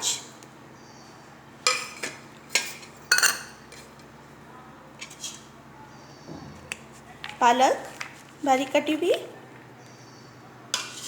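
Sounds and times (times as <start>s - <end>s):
utensils clinking against a bowl: 1.6s - 4.1s, 5.0s - 5.5s, 10.7s - 11.0s.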